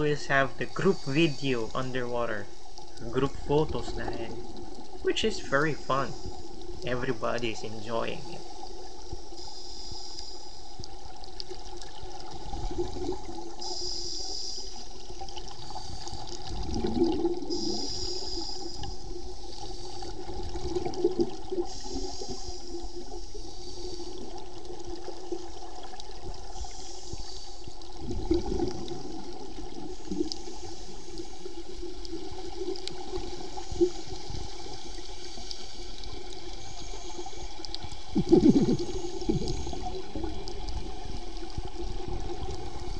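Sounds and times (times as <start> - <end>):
underwater regulator bubbles: 15.2 - 19.3, 27.9 - 42.9.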